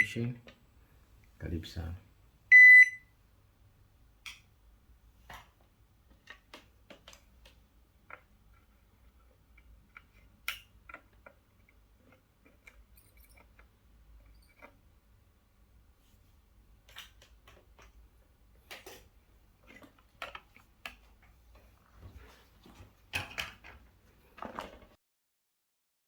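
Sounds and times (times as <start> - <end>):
high electronic beep: 2.5 - 3.0
faint clicks and taps: 5.2 - 13.7.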